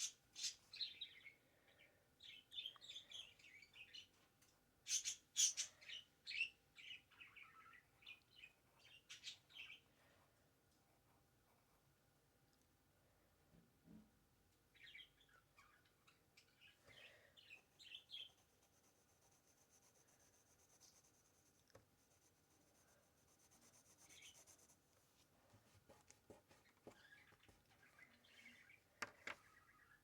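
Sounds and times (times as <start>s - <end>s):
faint bird chirps: 0.0s - 4.2s, 4.8s - 9.9s, 14.7s - 21.2s, 22.6s - 24.8s, 26.4s - 30.0s
pencil scratching on paper: 18.2s - 24.9s.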